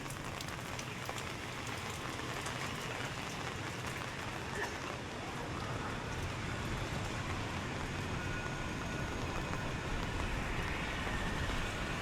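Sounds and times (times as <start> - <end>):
street traffic noise: 0.1 - 12.0.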